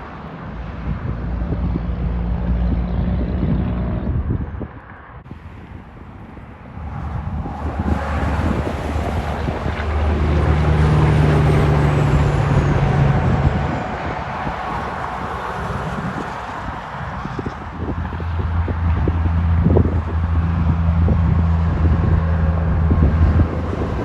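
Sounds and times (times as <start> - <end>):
truck driving past: 5.6 - 24.0.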